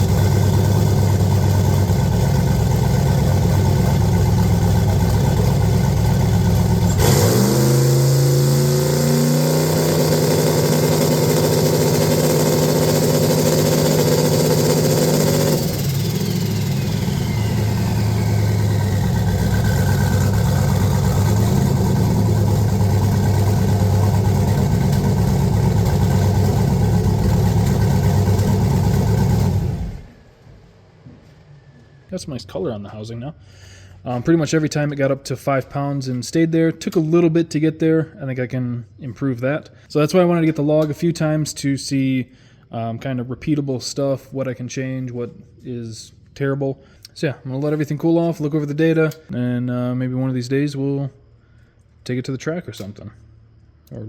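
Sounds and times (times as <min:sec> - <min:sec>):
truck engine revving: 0:00.0 - 0:30.2
falling whine: 0:00.0 - 0:32.6.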